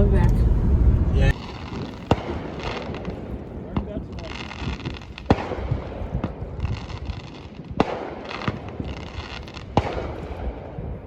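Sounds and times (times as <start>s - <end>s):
steady rumbling hiss: 0.0s - 7.8s.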